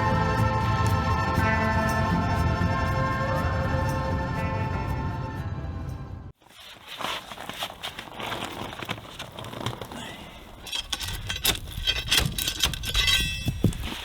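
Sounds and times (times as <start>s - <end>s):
crunching on gravel: 6.4s - 14.0s.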